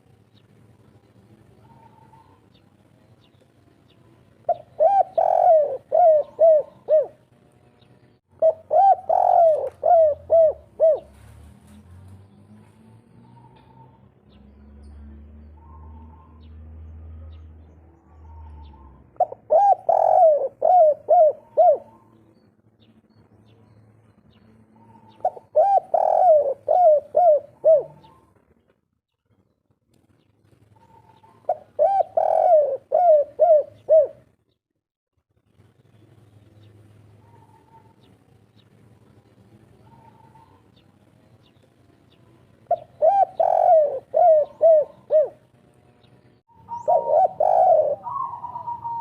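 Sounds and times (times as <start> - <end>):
dove cooing: 1.6 - 2.6, 4.4 - 7.2, 8.3 - 11.4, 18.1 - 22.2, 24.8 - 28.4, 30.8 - 34.3, 37.2 - 38.1, 39.8 - 40.8, 42.7 - 45.4, 46.5 - 49.0.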